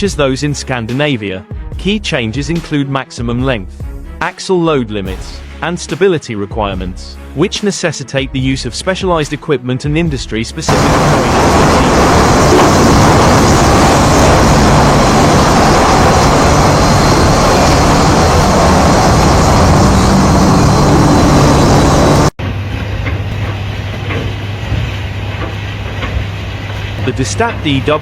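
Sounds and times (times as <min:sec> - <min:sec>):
heavy machinery engine hum: 0:10.7 - 0:28.0
quieter engine running: 0:10.7 - 0:28.0.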